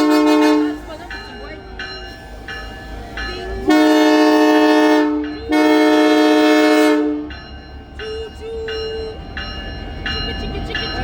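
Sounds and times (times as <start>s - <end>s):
locomotive air horn blasts: 0.0s - 0.9s, 3.6s - 7.3s.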